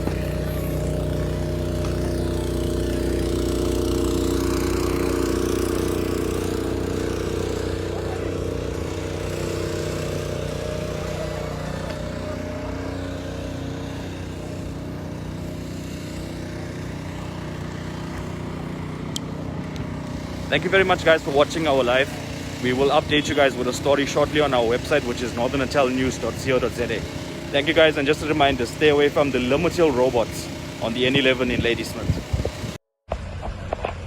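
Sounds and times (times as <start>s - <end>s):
vehicle engine idling: 0.0s - 32.6s.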